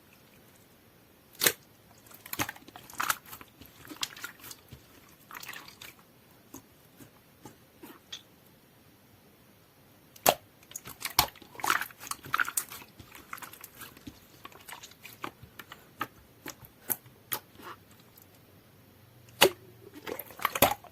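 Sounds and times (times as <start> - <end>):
loud slime pop: 1.4 - 1.6, 19.3 - 19.6.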